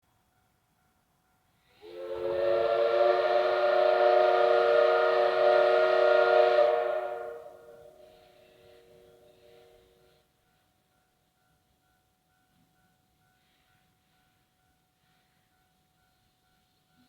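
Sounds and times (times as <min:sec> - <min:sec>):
steam locomotive whistle blast: 0:01.6 - 0:10.2.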